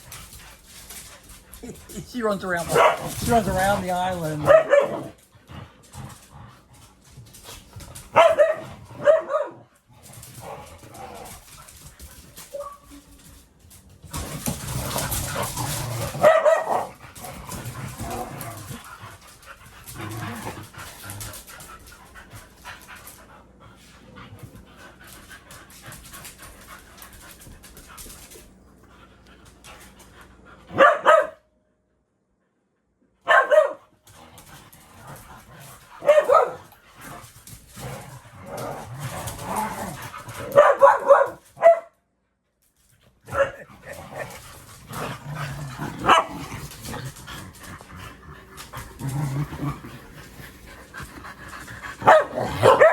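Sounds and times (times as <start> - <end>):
dogs barking: 2.7 - 3.8, 4.4 - 5.2, 8.1 - 9.6, 16.1 - 17.0, 30.7 - 31.4, 33.2 - 33.8, 36.0 - 36.6, 40.4 - 41.9, 46.0 - 46.4, 52.0 - 52.9.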